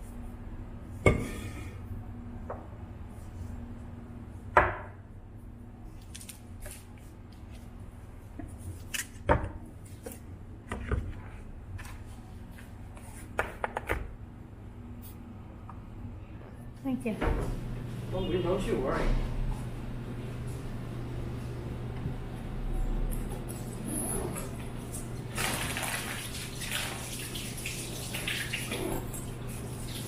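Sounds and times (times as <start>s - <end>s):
steady low hum: 14.0s - 25.4s.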